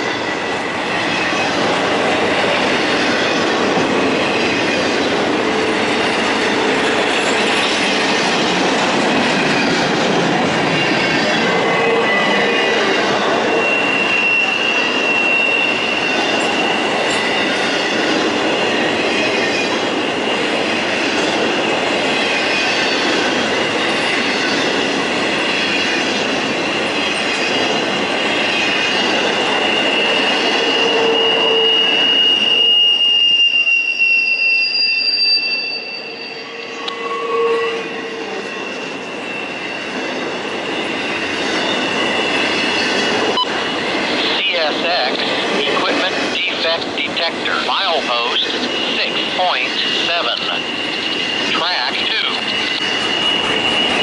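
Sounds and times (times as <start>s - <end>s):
railroad car wheels rumbling: 0.0s - 54.0s
wheel squeal: 10.7s - 21.2s, 28.4s - 43.4s, 52.5s - 54.0s.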